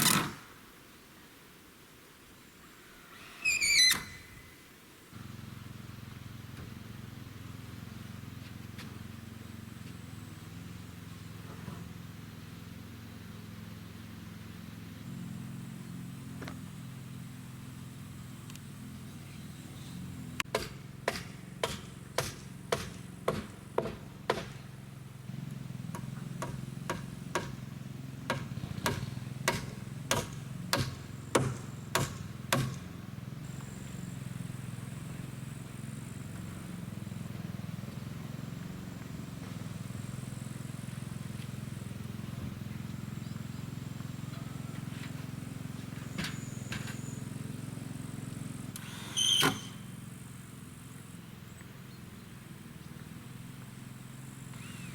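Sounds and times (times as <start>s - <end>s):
hammer blows: 20.4s - 24.8s, 25.9s - 27.6s, 28.3s - 32.9s.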